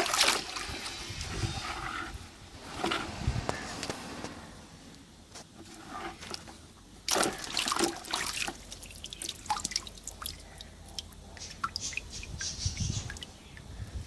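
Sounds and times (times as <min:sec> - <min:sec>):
water splashing and dripping: 0:00.0 - 0:00.9, 0:07.0 - 0:13.7.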